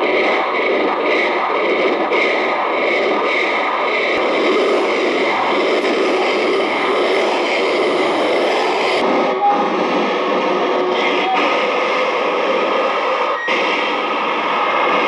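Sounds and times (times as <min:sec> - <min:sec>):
scratchy drawing noise: 0:00.2 - 0:09.0.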